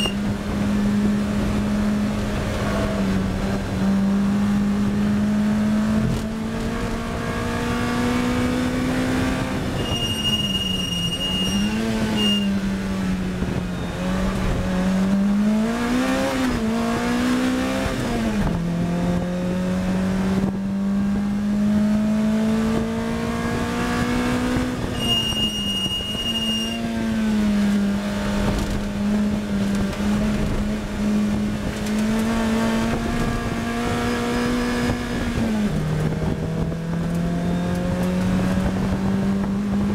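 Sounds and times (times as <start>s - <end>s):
race car engine accelerating: 0.0s - 39.9s.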